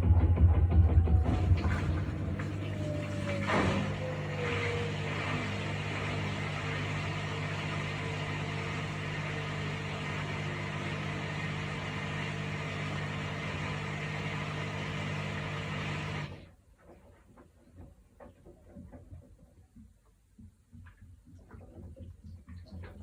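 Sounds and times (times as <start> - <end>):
washing machine humming: 0.0 - 16.6.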